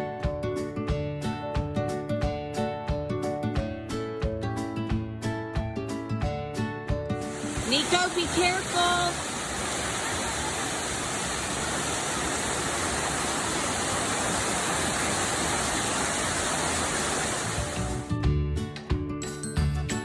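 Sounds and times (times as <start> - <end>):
music: 0.0 - 9.2, 17.6 - 20.0
waterfall rushing: 7.2 - 18.1.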